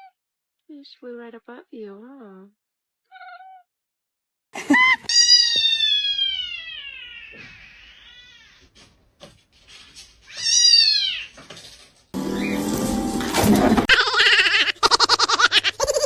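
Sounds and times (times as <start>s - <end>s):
cat meowing: 3.1s - 3.6s, 5.1s - 8.7s, 10.3s - 11.4s.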